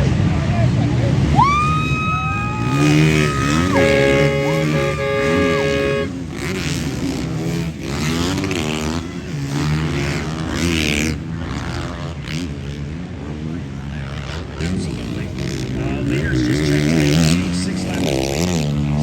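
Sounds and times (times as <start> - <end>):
motocross bike engines revving: 0.0 - 19.0
steady held tone: 2.5 - 6.2.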